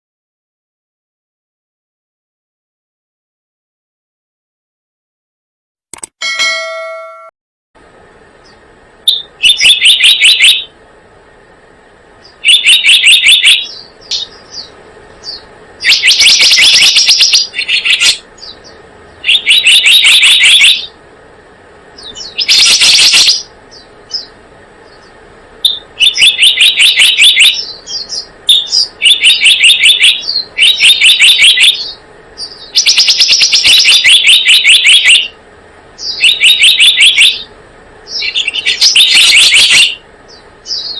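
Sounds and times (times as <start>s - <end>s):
bird chattering trills: 8.4s - 10.8s, 12.2s - 21.0s, 22.0s - 35.4s, 36.0s - 40.9s
bird chips: 12.2s - 20.9s, 22.0s - 35.3s.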